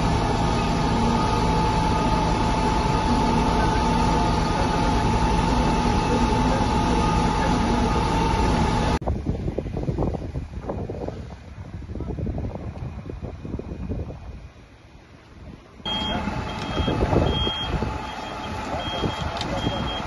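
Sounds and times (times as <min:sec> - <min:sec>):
machine noise with whine: 0:00.0 - 0:09.0, 0:15.8 - 0:20.0
wind on microphone: 0:08.6 - 0:20.0.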